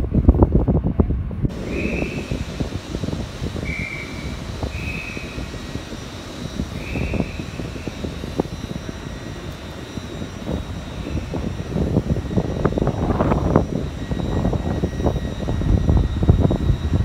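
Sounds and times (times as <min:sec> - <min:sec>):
train engine drone: 0:00.0 - 0:17.0.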